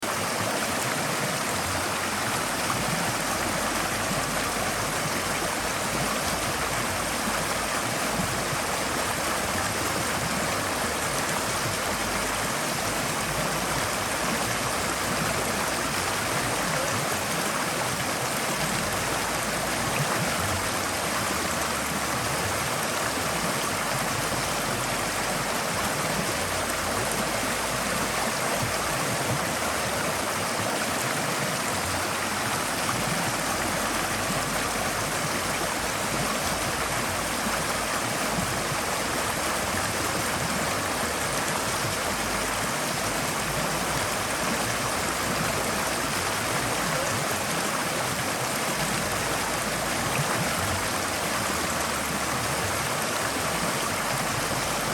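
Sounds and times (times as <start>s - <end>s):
stream flowing over rocks: 0.0s - 54.9s.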